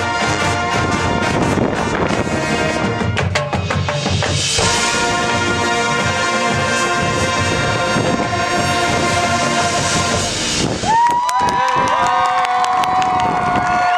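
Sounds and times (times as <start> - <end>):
held brass chord: 0.0 - 3.7, 4.4 - 10.8
marching band playing: 0.0 - 11.0
sharp drum hits: 3.2 - 11.0
wind buffeting microphone: 7.0 - 13.9.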